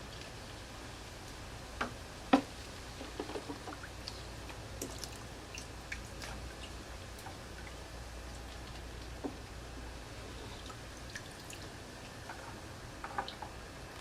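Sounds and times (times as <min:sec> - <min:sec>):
low steady hum: 0:00.0 - 0:14.0
water drips: 0:03.5 - 0:09.4, 0:10.6 - 0:12.4.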